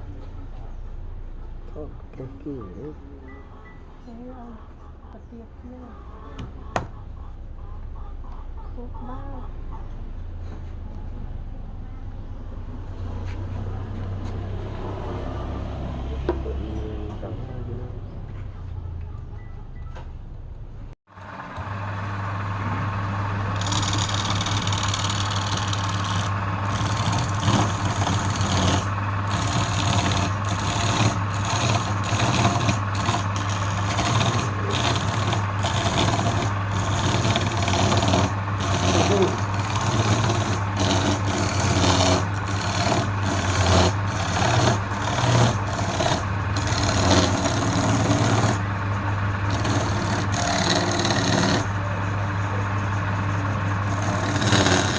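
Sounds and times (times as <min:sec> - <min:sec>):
wood lathe motor hum: 0:21.2 - 0:54.9
tool rasping against spinning wood: 0:22.7 - 0:54.9.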